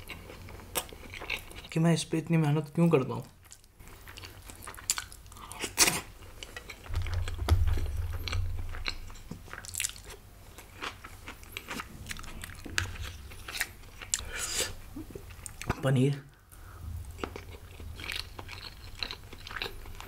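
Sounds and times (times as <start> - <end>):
crunchy chewing: 0.0 - 1.7, 3.4 - 15.7, 17.1 - 20.0
low rumble: 6.9 - 9.6, 11.8 - 14.0, 16.6 - 18.4.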